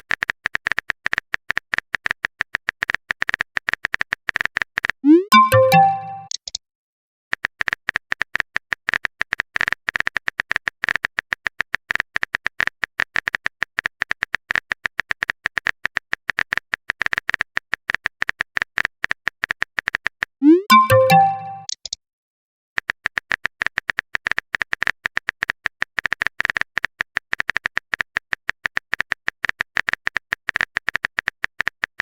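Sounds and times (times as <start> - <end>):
keyboard typing clicks: 5.0 - 6.6, 20.4 - 22.0
notification chime with rising sweep: 5.1 - 6.3, 20.4 - 21.7.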